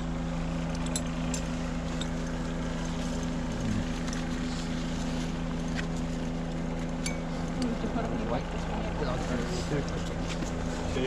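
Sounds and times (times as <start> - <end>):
engine drone: 0.0 - 11.0.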